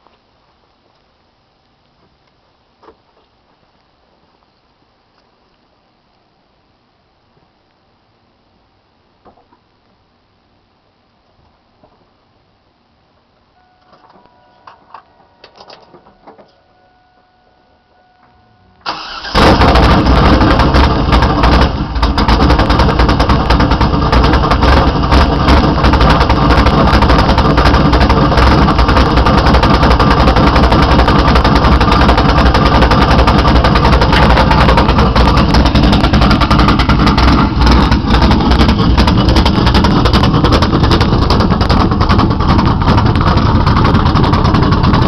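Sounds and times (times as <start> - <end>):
car engine cranking: 18.8 - 45.0
car engine loping idle: 18.8 - 45.0.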